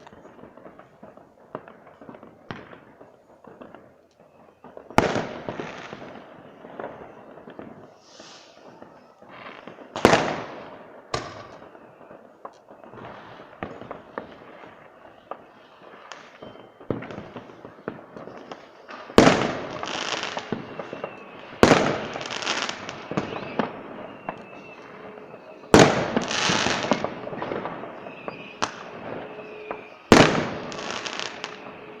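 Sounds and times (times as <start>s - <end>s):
firework crackling: 0.0s - 32.0s
small firework pops: 0.0s - 32.0s
firework shells bursting with bangs: 4.9s - 14.8s, 15.4s - 32.0s.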